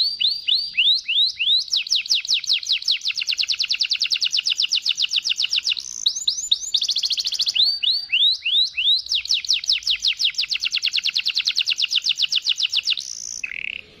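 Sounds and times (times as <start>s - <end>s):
canary singing trills: 0.0s - 14.0s.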